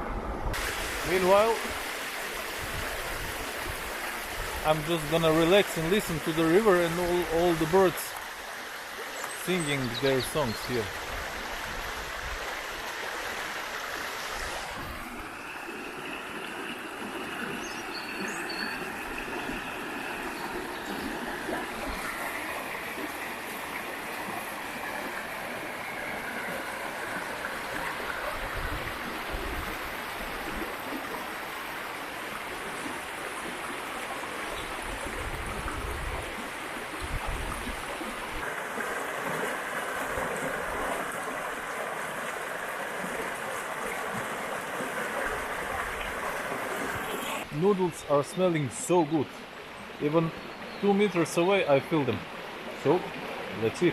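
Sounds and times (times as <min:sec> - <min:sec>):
river flowing: 0:00.0 - 0:53.9
bird chirps: 0:17.5 - 0:19.0.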